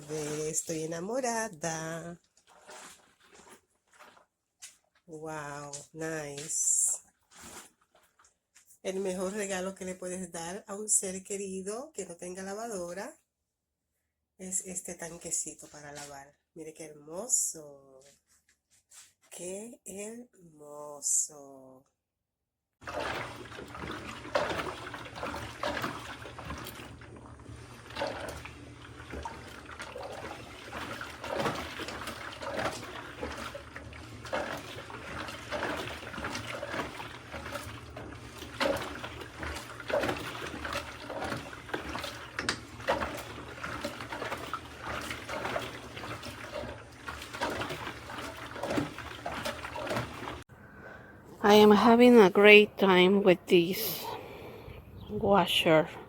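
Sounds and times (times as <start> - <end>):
water and laundry sloshing in drum: 0.0 - 11.0, 14.8 - 16.3, 17.2 - 19.5, 22.8 - 50.5.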